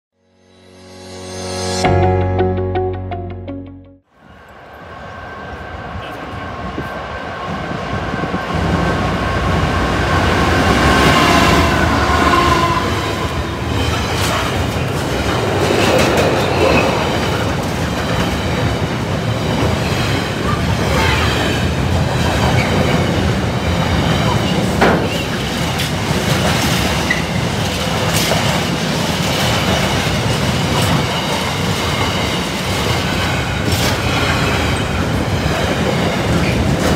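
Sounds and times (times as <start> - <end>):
freight train rumbling past: 4.1 - 36.9
wheels clacking over rail joints: 21.6 - 36.9.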